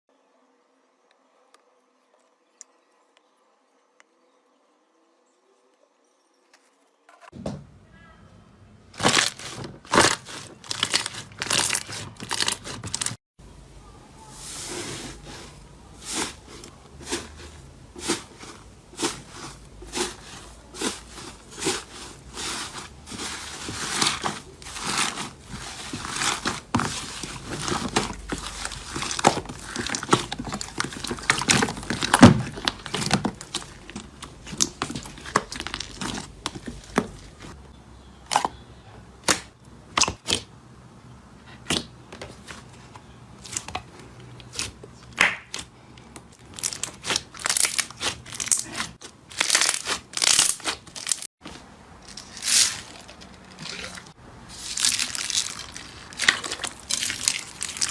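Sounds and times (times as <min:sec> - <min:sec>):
hands squishing slime: 0:14.4 - 0:37.6, 0:43.4 - 0:51.2, 0:52.2 - 0:57.9.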